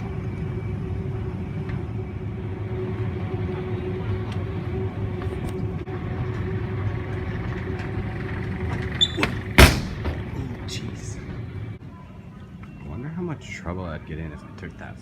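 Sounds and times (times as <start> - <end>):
moving walkway rumble and hum: 0.0 - 11.8.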